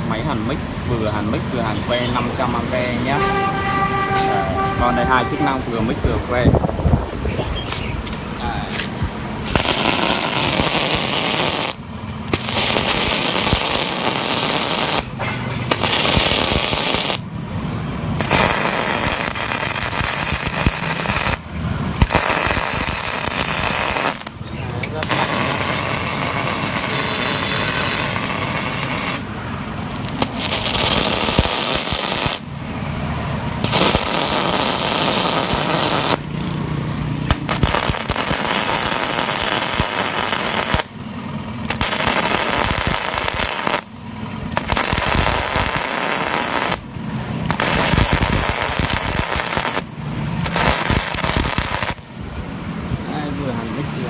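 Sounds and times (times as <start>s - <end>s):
welding arc crackling and hissing: 8.1s - 17.3s, 18.1s - 32.5s, 33.5s - 36.3s, 37.2s - 52.2s.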